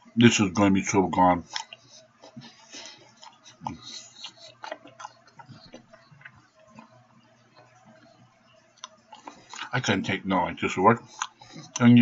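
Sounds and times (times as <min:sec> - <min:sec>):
man chewing food: 0:01.4 - 0:09.8, 0:11.0 - 0:12.0.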